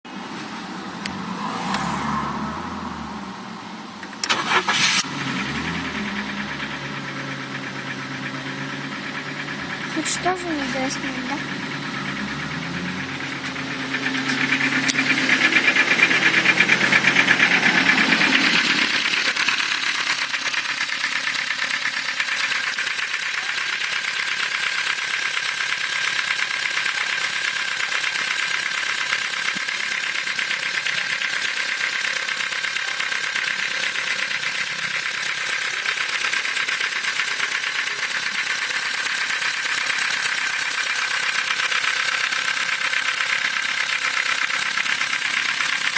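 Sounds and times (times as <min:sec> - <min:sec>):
car engine knocking: 0:05.2 - 0:45.9.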